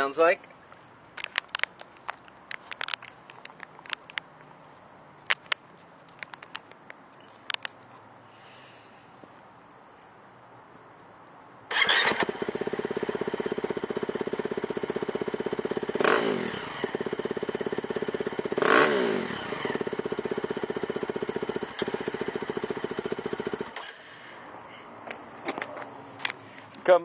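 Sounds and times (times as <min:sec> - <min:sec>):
dirt bike engine idling: 0:11.7 - 0:24.4.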